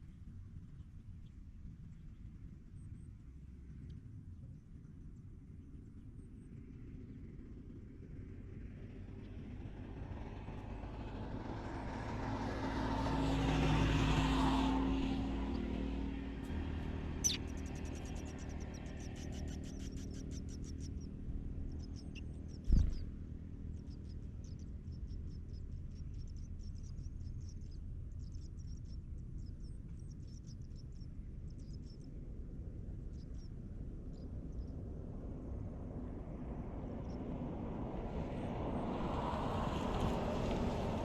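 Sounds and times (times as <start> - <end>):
steady low rumble: 14.8 - 39.1
nestlings cheeping: 17.2 - 18.5.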